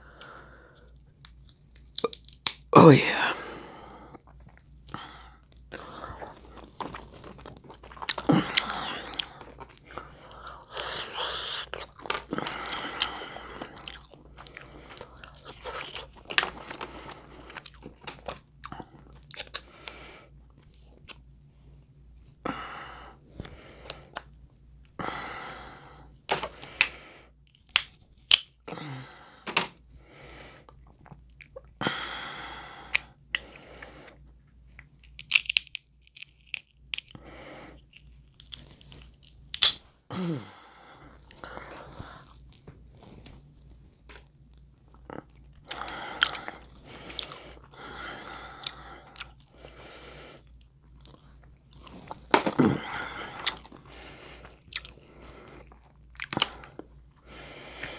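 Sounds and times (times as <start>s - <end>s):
chewing and crunching crab legs: 4.2s - 21.3s, 33.0s - 39.8s, 44.6s - 49.7s, 50.4s - 57.0s
shell cracking: 35.0s - 37.2s, 38.0s - 39.8s.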